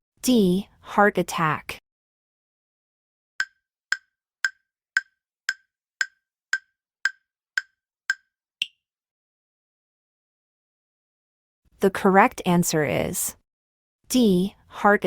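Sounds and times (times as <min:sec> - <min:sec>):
higher-pitched tick: 0:03.4 - 0:08.8
sharp wood-block-like ticks: 0:03.4 - 0:08.8.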